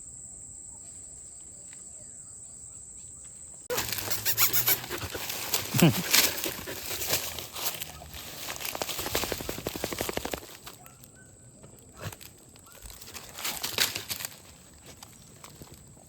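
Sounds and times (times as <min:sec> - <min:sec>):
cricket trilling: 0:00.0 - 0:11.6
swooping call: 0:03.7 - 0:05.1
loud rustling and crackling: 0:03.7 - 0:10.8.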